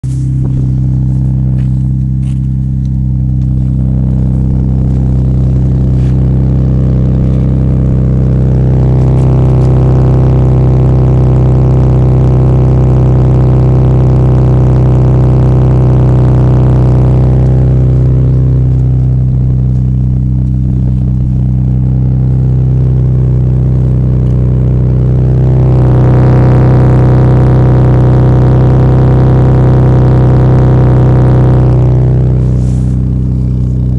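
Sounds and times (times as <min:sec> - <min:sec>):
car exhaust drone: 0:00.0 - 0:33.9.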